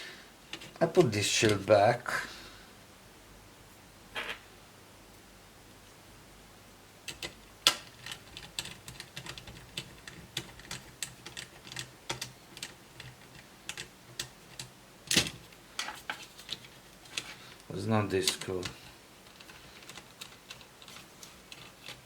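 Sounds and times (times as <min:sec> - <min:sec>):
small laptop parts clicking: 0:07.1 - 0:15.3.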